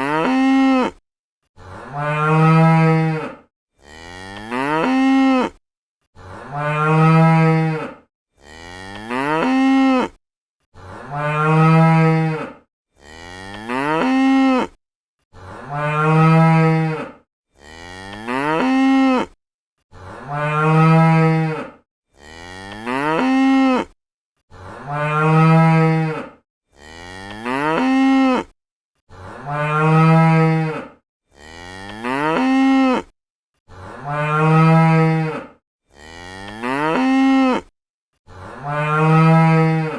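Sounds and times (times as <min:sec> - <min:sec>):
cow mooing: 0:00.0 - 0:01.0, 0:01.6 - 0:05.6, 0:06.2 - 0:10.2, 0:10.8 - 0:28.6, 0:29.2 - 0:33.1, 0:33.7 - 0:37.7, 0:38.3 - 0:39.9.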